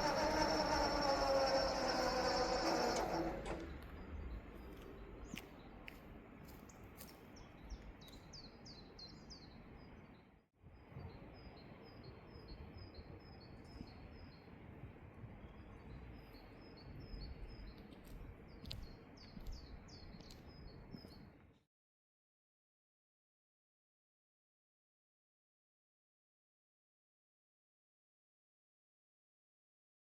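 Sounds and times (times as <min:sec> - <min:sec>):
outdoor background noise: 0:00.0 - 0:21.7
small bird chirping: 0:15.4 - 0:21.3.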